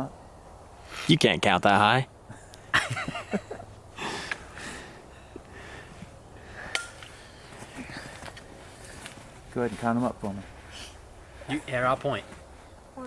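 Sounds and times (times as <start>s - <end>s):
person breathing and sniffing: 0.8s - 1.1s, 4.0s - 9.1s, 10.5s - 11.5s.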